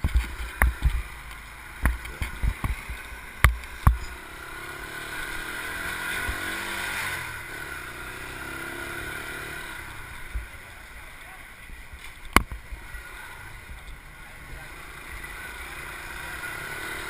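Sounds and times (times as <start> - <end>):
engine passing by: 3.9 - 11.1, 12.7 - 17.0.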